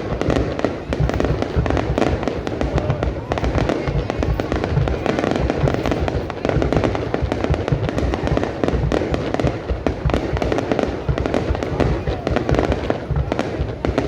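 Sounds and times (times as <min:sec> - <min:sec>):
fireworks cracks and bangs: 0:00.0 - 0:14.0.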